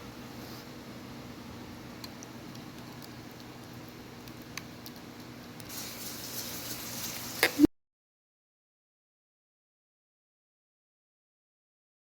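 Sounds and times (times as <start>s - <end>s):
running water hiss: 5.7s - 7.7s.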